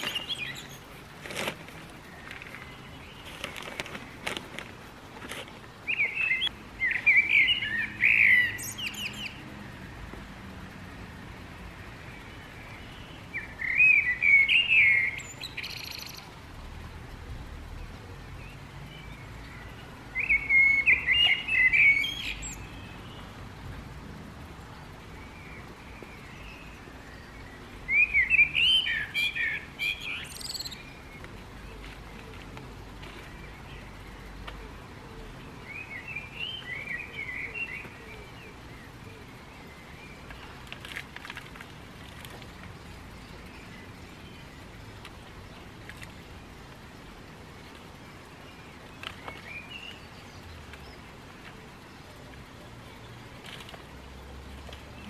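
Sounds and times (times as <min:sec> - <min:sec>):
songbird warbling: 0:00.0 - 0:01.0, 0:05.8 - 0:09.4, 0:12.7 - 0:16.3, 0:18.4 - 0:23.2, 0:25.2 - 0:32.6.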